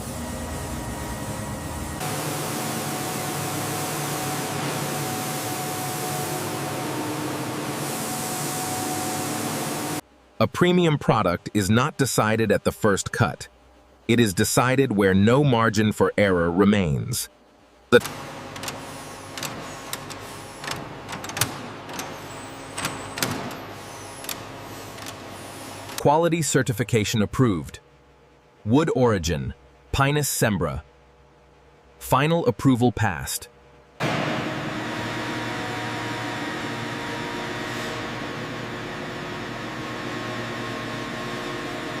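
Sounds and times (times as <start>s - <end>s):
factory machinery humming: 0.0s - 13.2s, 17.8s - 26.8s, 34.0s - 42.0s
constant machine tones: 17.2s - 28.4s.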